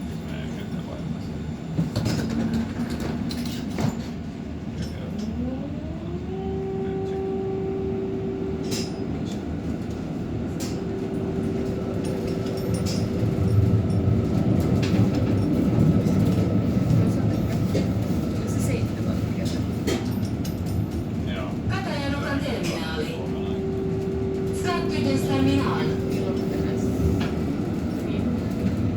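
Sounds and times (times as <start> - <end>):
tram motor whine: 0.0 - 28.9
wheels rumbling on rails: 0.0 - 28.9.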